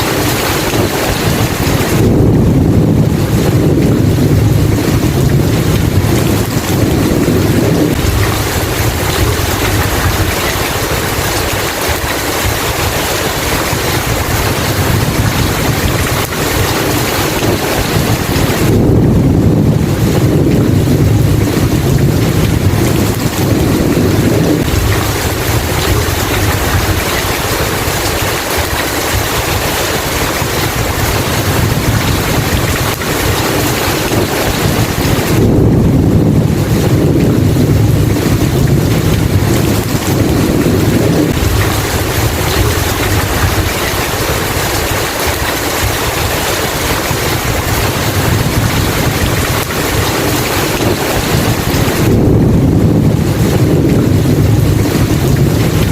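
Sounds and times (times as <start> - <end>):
heavy rain hissing: 0.0 - 55.9
low rolling thunder: 0.0 - 55.9.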